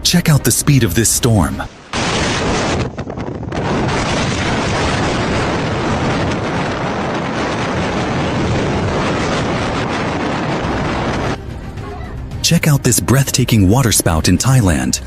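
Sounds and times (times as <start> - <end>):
storm wind on microphone: 1.7 - 13.1.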